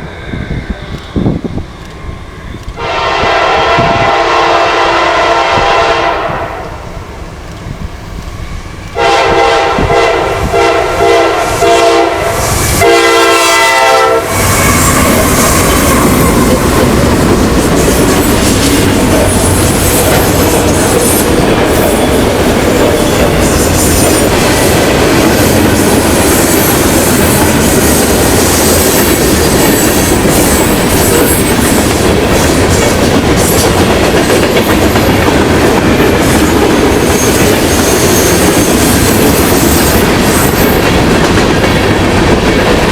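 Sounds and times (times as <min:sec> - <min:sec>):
train passing with rumble: 0:00.0 - 0:42.9
locomotive horn blasts: 0:02.8 - 0:06.7, 0:09.0 - 0:14.9.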